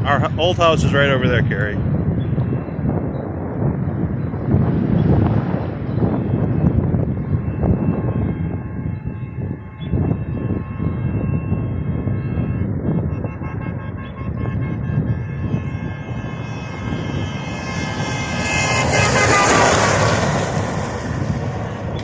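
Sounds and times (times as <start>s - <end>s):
wind buffeting microphone: 0.0s - 22.0s
rush of noise: 15.4s - 22.0s.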